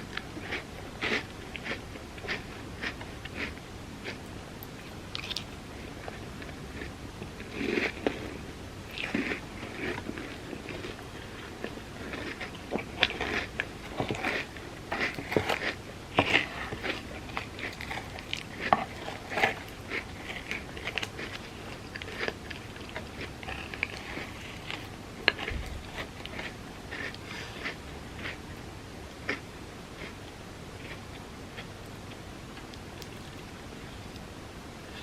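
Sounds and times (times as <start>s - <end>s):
person chewing: 0.1s - 28.5s, 30.0s - 34.2s.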